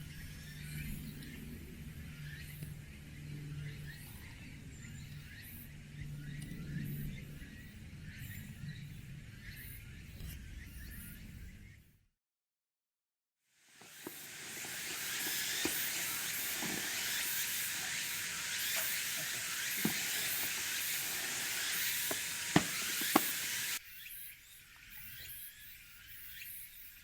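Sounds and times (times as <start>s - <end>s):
beef sizzling in a pot: 13.7s - 23.8s
fat spitting pops: 13.8s - 23.8s
outdoor background noise: 13.8s - 23.8s.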